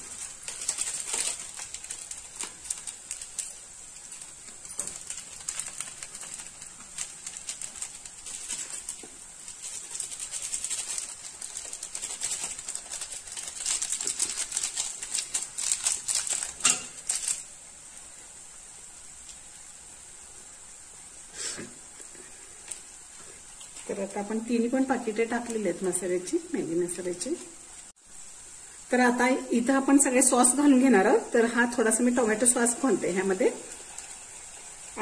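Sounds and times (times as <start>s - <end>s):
crackles and pops: 0.0s - 17.6s, 19.0s - 19.8s
vegetables sizzling in oil: 0.0s - 35.0s.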